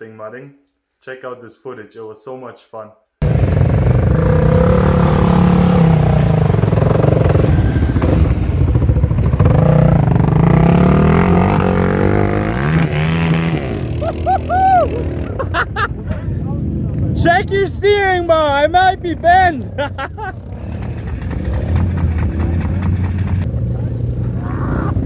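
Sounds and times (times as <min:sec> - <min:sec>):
quad engine revving: 0:03.2 - 0:17.2, 0:19.1 - 0:25.0.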